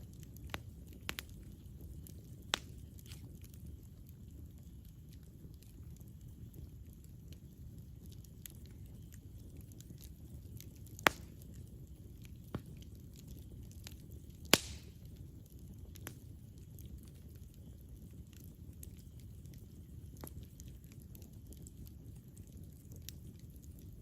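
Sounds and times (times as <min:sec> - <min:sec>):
loud fire pops: 0:00.0 - 0:03.9, 0:08.3 - 0:19.6
campfire crackling: 0:00.0 - 0:24.0.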